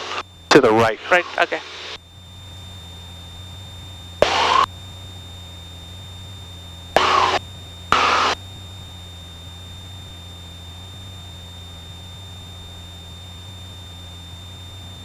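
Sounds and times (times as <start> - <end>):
intercom hiss bursts: 0.0 - 2.0, 4.2 - 4.7, 7.0 - 7.4, 8.0 - 8.4
airplane engine drone: 0.0 - 15.0.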